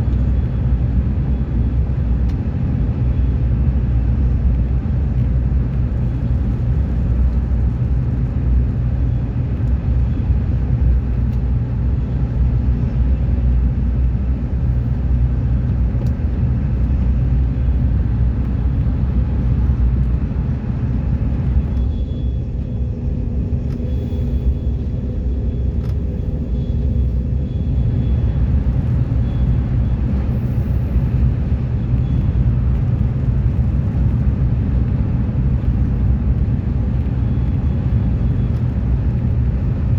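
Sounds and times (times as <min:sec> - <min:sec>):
train rumbling: 0:00.0 - 0:39.9
faint high whine: 0:21.5 - 0:32.4.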